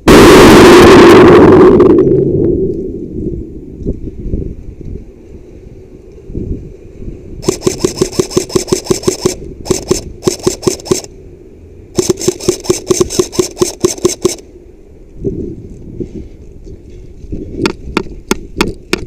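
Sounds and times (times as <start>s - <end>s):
airsoft rifle automatic bursts: 7.4s - 11.1s, 12.0s - 14.4s.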